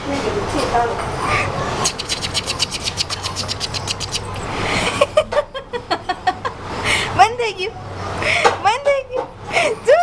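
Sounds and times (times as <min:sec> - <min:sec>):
rapid clicking: 0:01.9 - 0:04.4.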